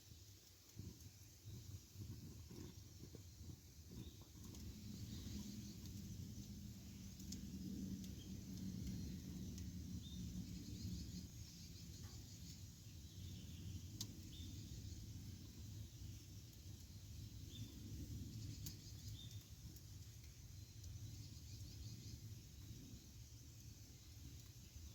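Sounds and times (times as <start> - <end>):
campfire flame rush: 0.0 - 24.9
fire crackles: 0.0 - 24.9
faint bird or insect chirps: 2.5 - 24.9.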